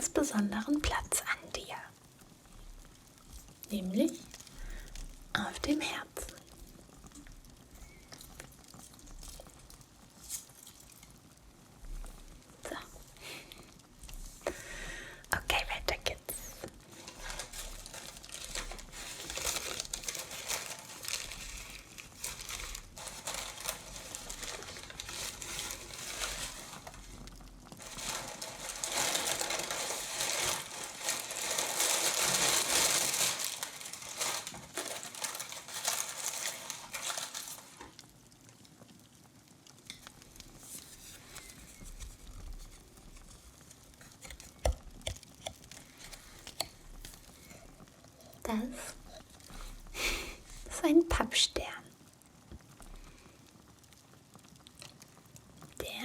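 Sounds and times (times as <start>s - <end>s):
wrapping crinkling and rustling: 0.0s - 56.0s.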